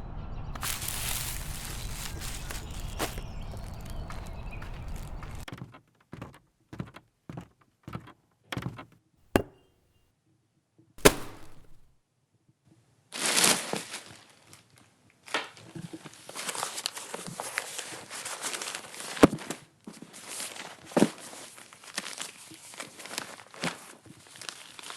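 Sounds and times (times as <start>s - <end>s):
footsteps: 0.6s - 5.4s, 9.4s - 9.6s, 11.0s - 11.9s
loud thunk: 9.4s - 9.6s, 11.0s - 11.9s.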